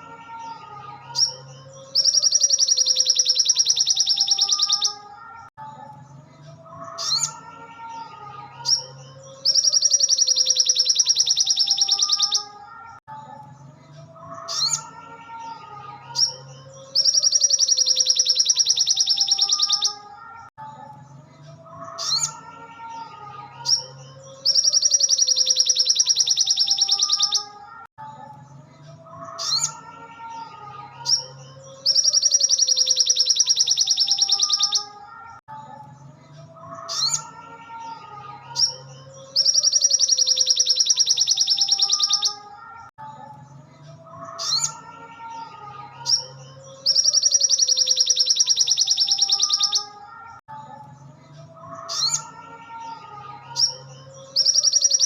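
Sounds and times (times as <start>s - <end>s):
songbird high-pitched trill: 1.2s - 5.1s, 8.6s - 12.5s, 16.2s - 20.0s, 23.6s - 27.6s, 31.0s - 35.0s, 38.6s - 42.5s, 46.0s - 50.0s, 53.6s - 55.0s.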